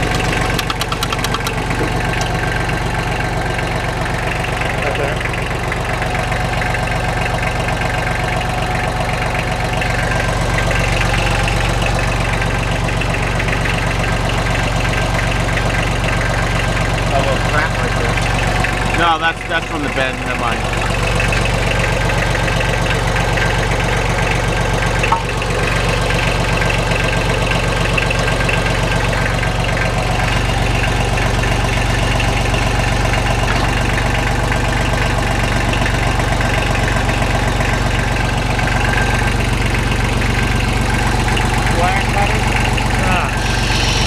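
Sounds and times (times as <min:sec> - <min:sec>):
tractor diesel engine idling: 0:00.0 - 0:44.0
sharp click: 0:00.5 - 0:01.6.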